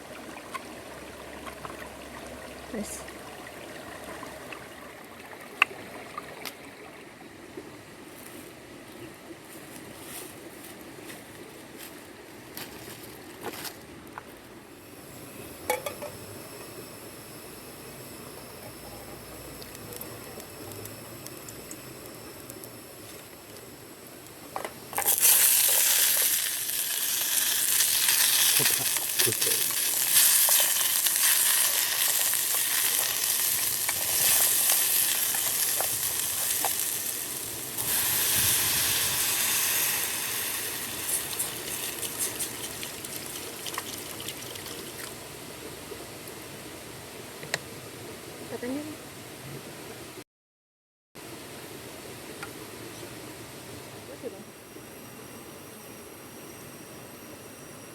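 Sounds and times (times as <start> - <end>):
food sizzling in hot oil: 24.9 - 45.0.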